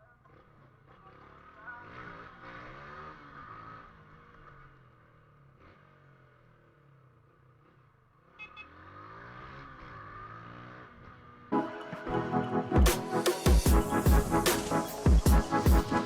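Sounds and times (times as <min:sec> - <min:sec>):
motorcycle engine revving: 0:00.2 - 0:11.6.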